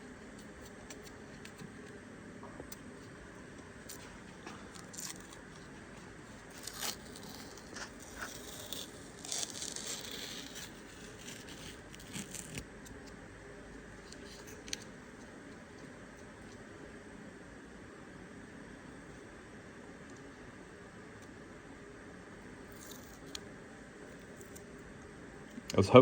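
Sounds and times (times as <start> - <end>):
tape peeling off metal: 6.5 - 13.0.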